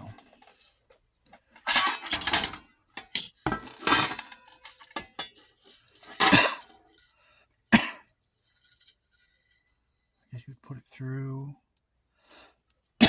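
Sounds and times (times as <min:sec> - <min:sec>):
film editor parts clattering: 0:01.6 - 0:06.9.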